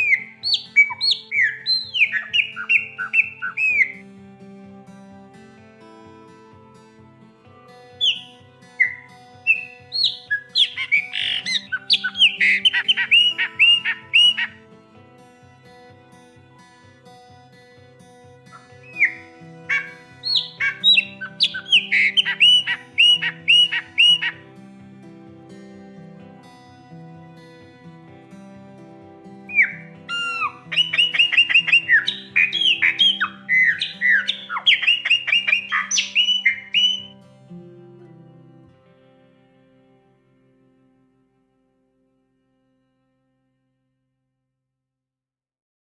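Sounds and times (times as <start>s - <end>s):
blackbird whistling song: 0.0s - 3.9s, 9.5s - 14.5s, 18.9s - 24.4s, 29.5s - 37.1s
soft instrumental music: 0.0s - 43.1s.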